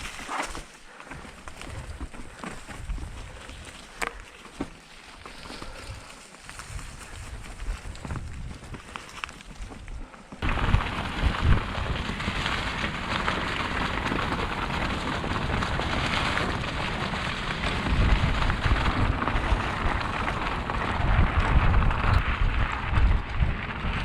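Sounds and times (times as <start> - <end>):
bike tyres rolling on dirt: 0.0 - 24.0
wind buffeting microphone: 5.6 - 9.0, 10.4 - 24.0.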